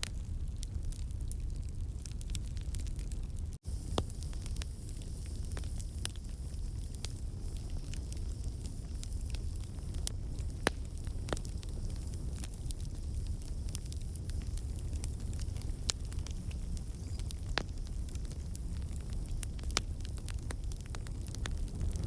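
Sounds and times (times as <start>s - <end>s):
campfire flames rumbling: 0.0s - 22.0s
fire pops and crackles: 0.0s - 22.0s.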